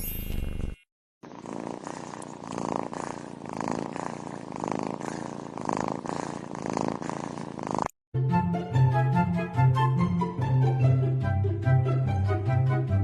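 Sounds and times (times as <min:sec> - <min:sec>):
cat purring: 0:01.2 - 0:08.0.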